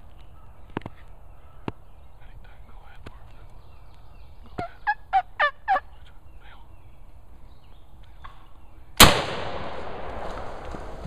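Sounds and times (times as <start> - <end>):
turkey gobbling: 4.5 - 6.1
shotgun shot with echo: 9.0 - 10.9.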